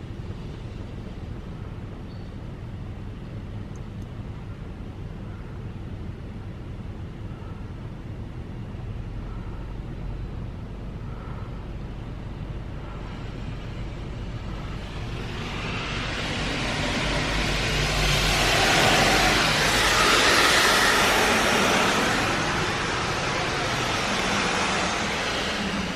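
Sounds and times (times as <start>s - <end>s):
car wash low rumble: 0.0s - 25.9s
hiss of spraying water: 14.6s - 25.9s.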